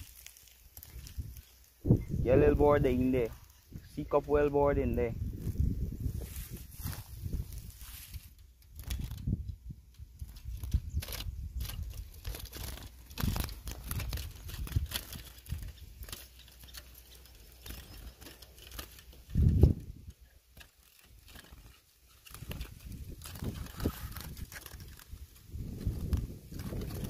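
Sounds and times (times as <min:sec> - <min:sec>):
bird flapping in cage: 0:08.2 - 0:09.4, 0:10.2 - 0:27.0.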